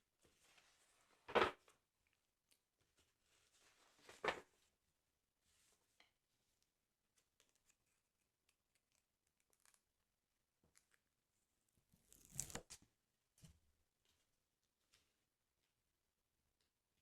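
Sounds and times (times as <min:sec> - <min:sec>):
paper tearing: 0:12.1 - 0:12.8.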